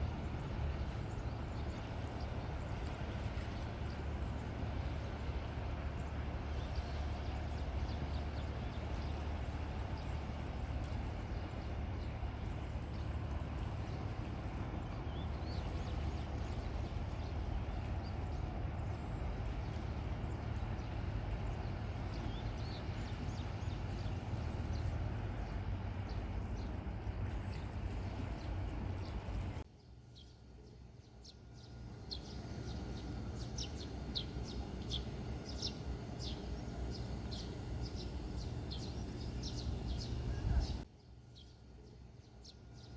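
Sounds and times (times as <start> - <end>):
heavy low rumble outdoors: 0.0 - 42.9
small birds chirping: 14.8 - 42.9.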